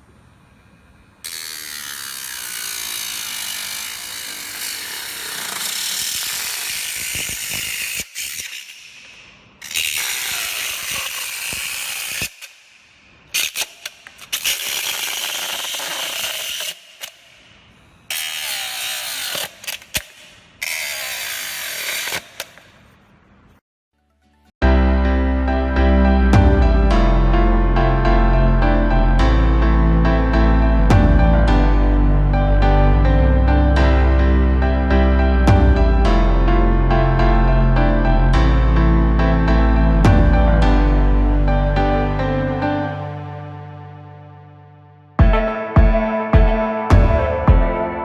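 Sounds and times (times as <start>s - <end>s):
motor grinder grinding material: 1.3s - 8.7s.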